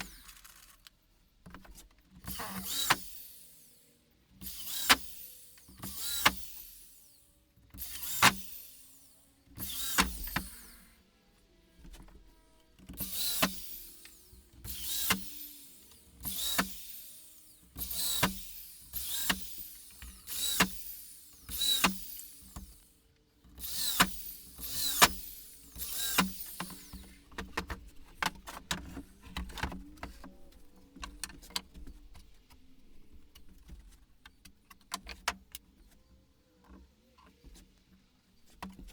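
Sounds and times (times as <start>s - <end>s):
power drill bursts: 0.0s - 0.7s, 2.3s - 3.8s, 4.4s - 11.0s, 13.0s - 22.9s, 23.6s - 27.3s.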